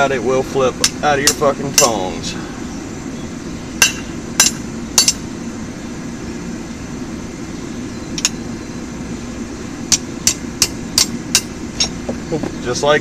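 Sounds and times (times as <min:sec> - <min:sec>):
hammer ringing on anvil: 0:03.8 - 0:05.2, 0:09.9 - 0:12.0.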